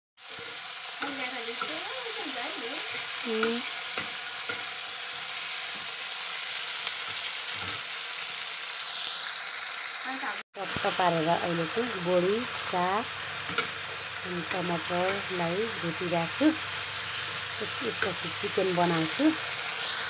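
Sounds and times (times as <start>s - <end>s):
metal spoon scraping a pan: 0.2s - 1.8s, 2.8s - 7.9s, 13.1s - 20.0s
vegetables sizzling in hot oil: 0.2s - 20.0s.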